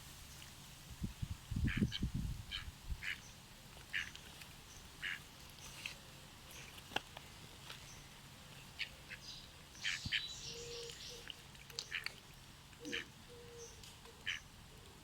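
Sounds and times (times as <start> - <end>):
birds calling: 1.6 - 5.9, 7.8 - 12.2, 12.8 - 14.5.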